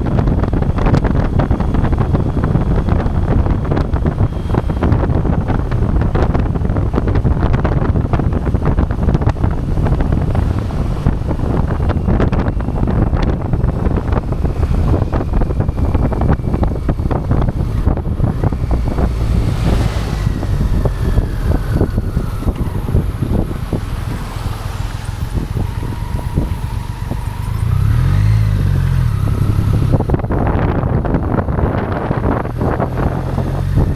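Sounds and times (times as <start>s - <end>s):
motorcycle engine running: 0.0s - 33.9s
wind buffeting microphone: 0.0s - 33.9s.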